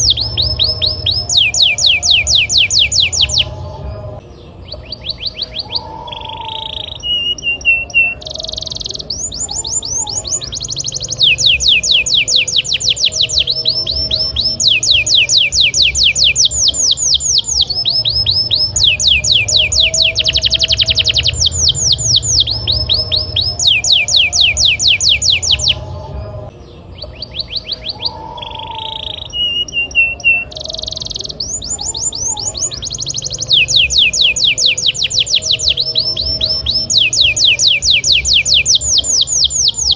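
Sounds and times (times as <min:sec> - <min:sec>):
steady low hum: 0:00.0 - 0:05.6, 0:09.0 - 0:27.2
canary singing trills: 0:00.0 - 0:39.9.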